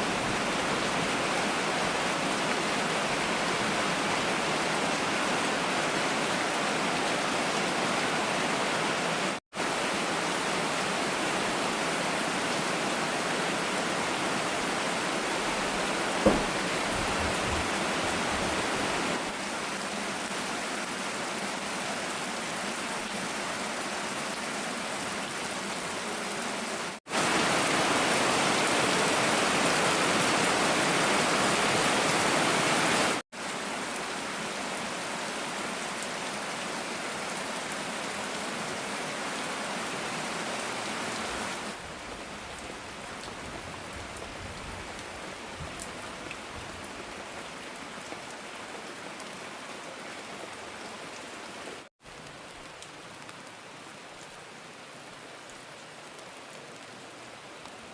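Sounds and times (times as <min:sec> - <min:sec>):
heavy rain hissing: 0:09.6 - 0:43.1.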